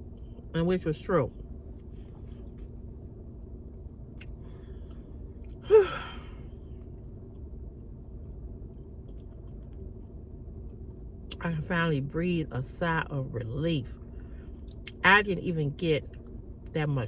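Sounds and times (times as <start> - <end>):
faint low hum: 0.0 - 17.0
woman sighing: 5.6 - 6.4.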